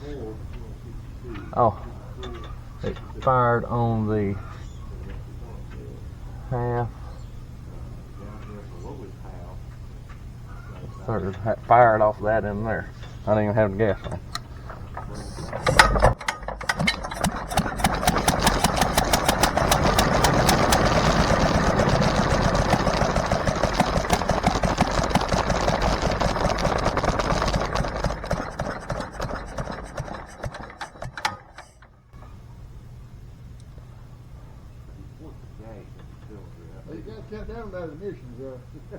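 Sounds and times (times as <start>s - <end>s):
single-cylinder engine exhaust beat: 11.8s - 34.8s
engine backfire bang: 15.1s - 31.8s.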